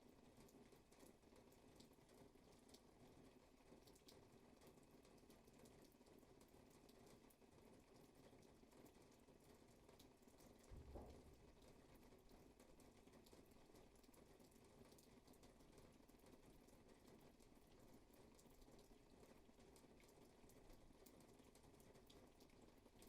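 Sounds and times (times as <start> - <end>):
faint rainfall: 0.0 - 23.0
low thump: 10.8 - 11.4.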